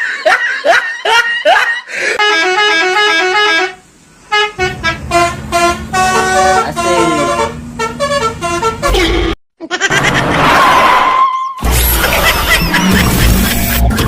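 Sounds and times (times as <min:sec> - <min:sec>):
multi-tone bus horn tune: 0:02.0 - 0:09.4.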